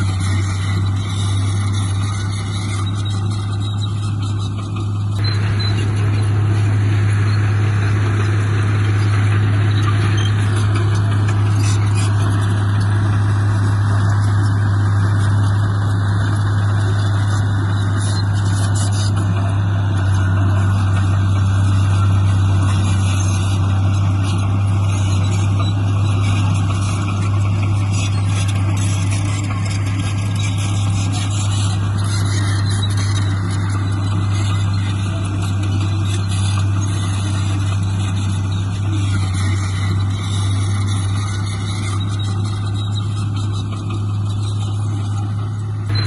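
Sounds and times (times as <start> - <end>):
heavy diesel engine humming: 0.0 - 46.0.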